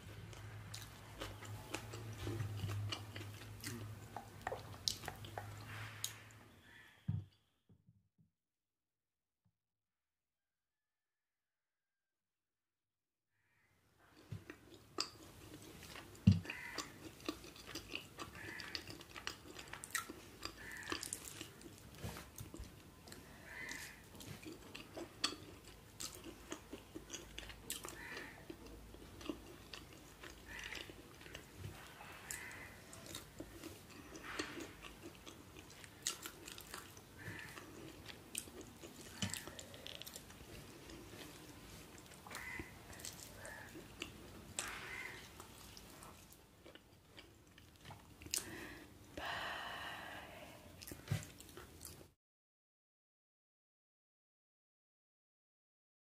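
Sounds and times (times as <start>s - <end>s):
chewing and biting: 0.2s - 6.2s, 14.2s - 48.5s.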